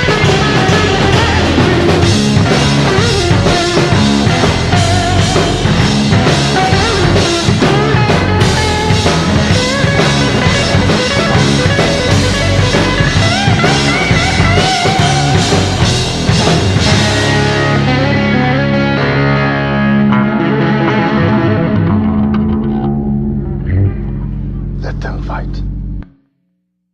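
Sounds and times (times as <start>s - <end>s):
drum kit: 0.0s - 19.3s
electric guitar bending notes: 0.0s - 26.2s.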